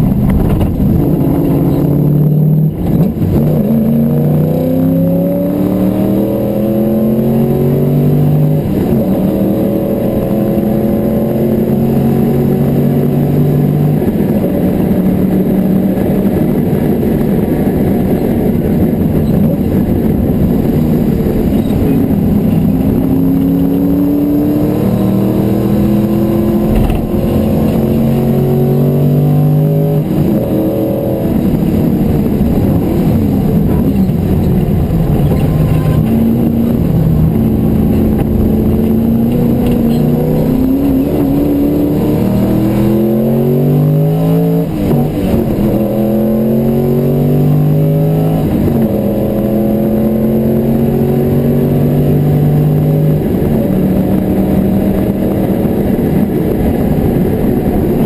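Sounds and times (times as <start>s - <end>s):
car engine accelerating through gears: 0.0s - 58.0s
short thump: 0.2s - 0.9s, 26.6s - 27.3s.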